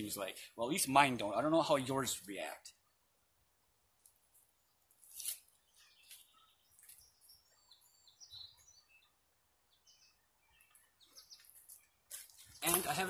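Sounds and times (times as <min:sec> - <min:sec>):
faint bird chirps: 0:05.5 - 0:12.7.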